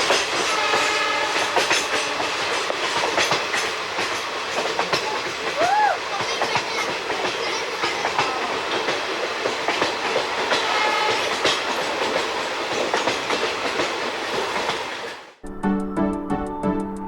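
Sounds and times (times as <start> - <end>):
wheels clacking over rail joints: 0.0 - 15.2
passenger train coach running: 0.0 - 15.4
music: 15.4 - 17.0.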